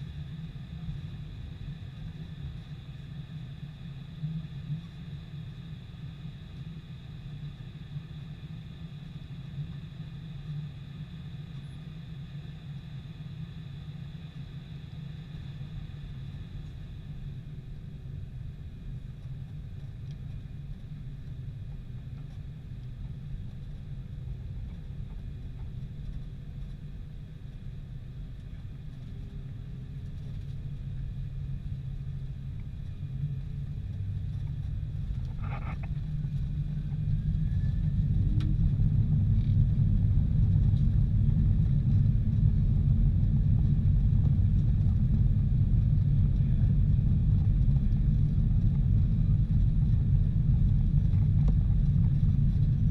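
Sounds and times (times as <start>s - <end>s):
jet engines rumbling: 28.6s - 52.9s.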